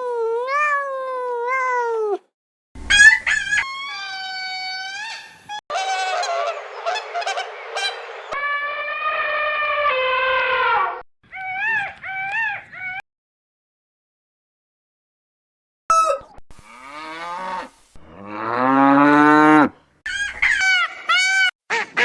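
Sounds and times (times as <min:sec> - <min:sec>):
animal howling: 0:02.9 - 0:07.0, 0:08.3 - 0:13.0
animal squealing: 0:02.9 - 0:07.0, 0:08.3 - 0:13.0
overlapping animal cries: 0:02.9 - 0:07.3, 0:08.3 - 0:13.0.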